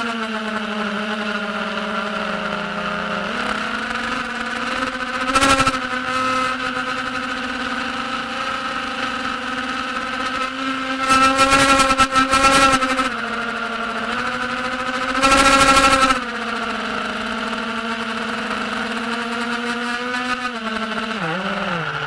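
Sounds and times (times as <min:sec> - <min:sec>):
quadcopter propellers buzzing: 0:00.0 - 0:22.0.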